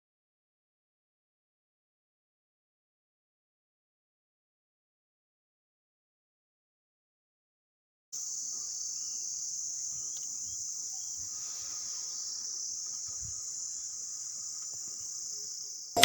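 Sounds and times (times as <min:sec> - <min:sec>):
insects chirring: 0:08.2 - 0:16.0.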